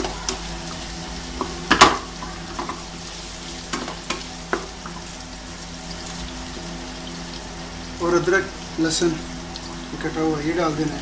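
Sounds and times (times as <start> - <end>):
meat sizzling in a frying pan: 0.0 - 11.0
wooden spatula knocking on a pan: 1.4 - 2.8, 3.7 - 4.7.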